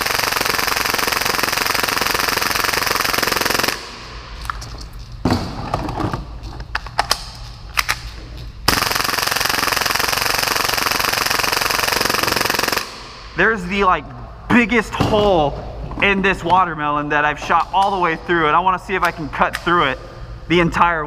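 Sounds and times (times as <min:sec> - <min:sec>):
airsoft pistol firing full-auto: 0:00.0 - 0:04.0, 0:08.7 - 0:13.1
sharp clicks and handling noise: 0:04.4 - 0:08.7, 0:19.0 - 0:19.8.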